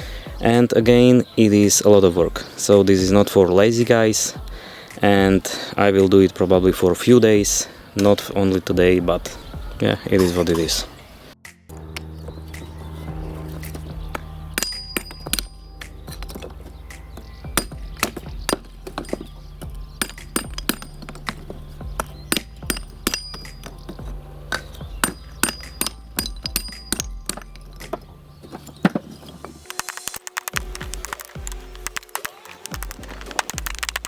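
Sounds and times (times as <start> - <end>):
music with low bass line: 11.4 - 29.7
sharp knocks and clinks: 13.6 - 29.6.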